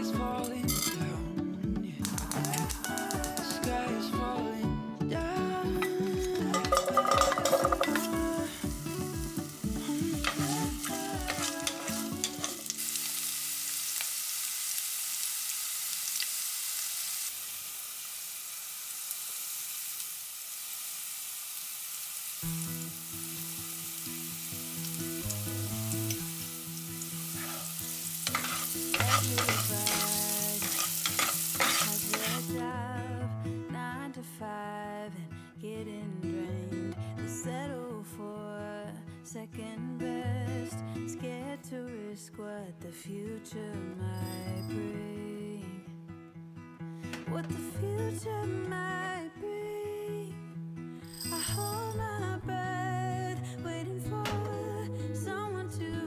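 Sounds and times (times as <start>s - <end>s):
background music: 0.0s - 13.5s, 22.5s - 42.5s, 51.1s - 56.0s
vegetables sizzling in hot oil: 2.1s - 3.6s, 6.2s - 32.7s.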